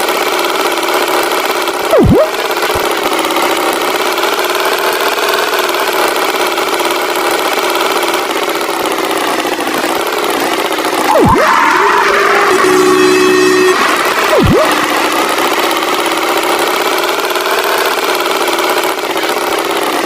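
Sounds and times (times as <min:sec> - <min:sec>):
cartoon tractor engine idling: 0:00.0 - 0:20.0
swooping pitch effect: 0:01.9 - 0:02.9, 0:11.0 - 0:15.3.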